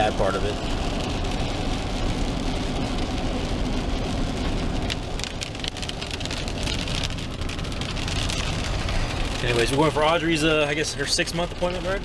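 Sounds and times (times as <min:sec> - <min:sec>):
rain hitting a car: 0:00.0 - 0:12.0
road and engine noise: 0:00.0 - 0:12.0.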